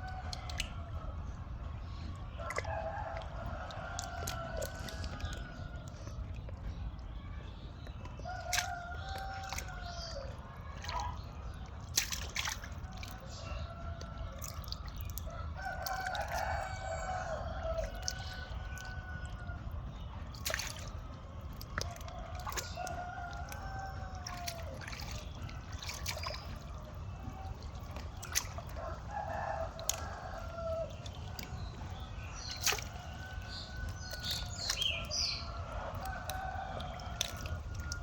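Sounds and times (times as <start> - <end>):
steady low rumble: 0.0 - 38.0
rooster crowing: 28.8 - 30.9.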